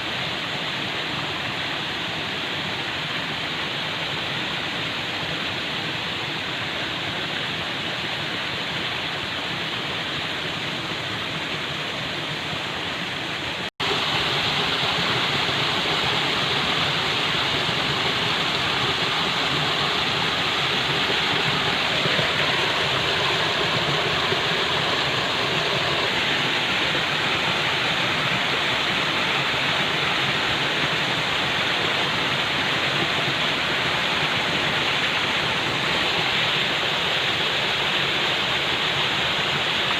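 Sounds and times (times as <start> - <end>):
falling water rushing: 0.0 - 39.9.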